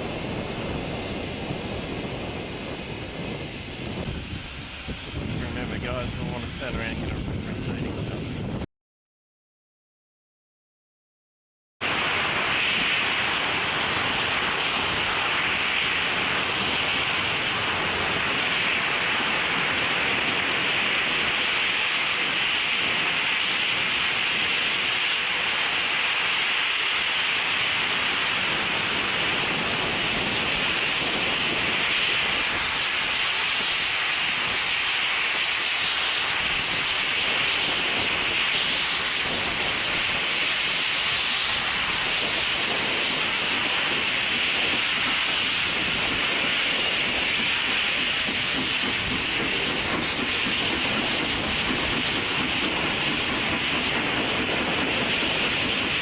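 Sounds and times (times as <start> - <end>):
steam locomotive hissing: 11.9 - 56.0.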